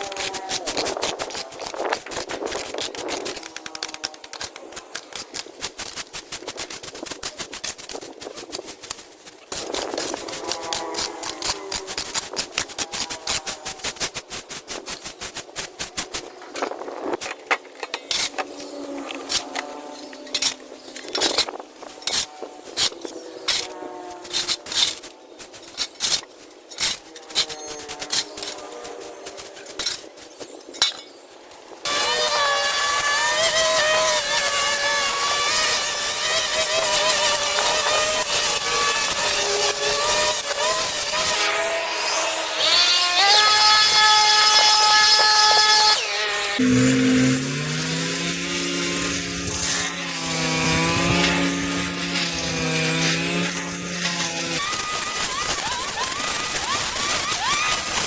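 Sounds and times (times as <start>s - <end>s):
motor running with whine: 46.6s - 54.5s.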